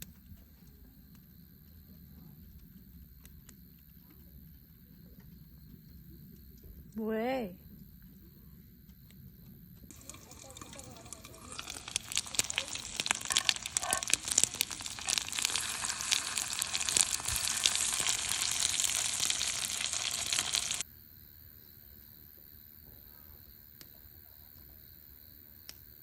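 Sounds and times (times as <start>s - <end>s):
insects trilling: 7.6s - 20.8s
food sizzling in a pan: 9.9s - 20.8s.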